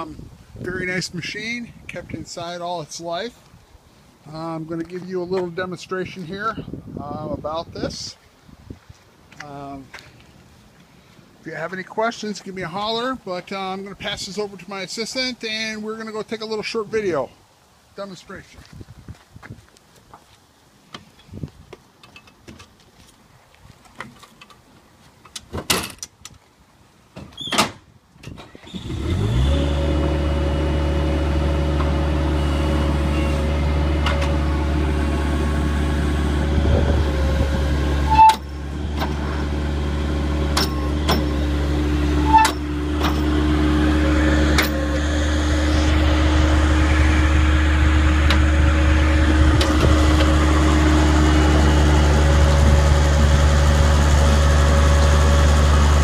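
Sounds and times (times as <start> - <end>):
skid steer engine running: 28.6 - 56.0.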